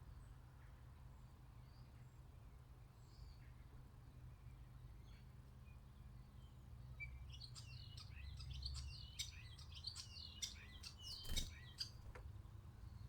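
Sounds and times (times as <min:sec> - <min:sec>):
songbird twittering: 0:07.3 - 0:12.1.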